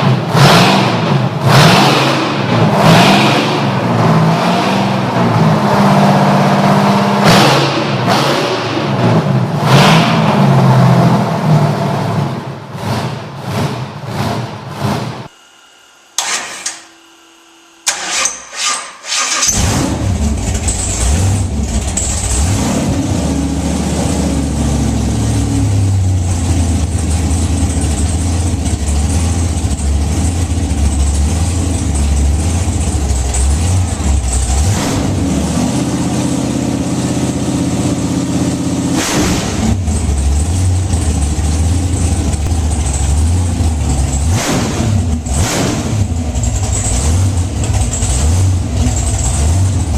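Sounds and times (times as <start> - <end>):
large engine cranking and running: 16.2 - 16.8, 17.8 - 49.9.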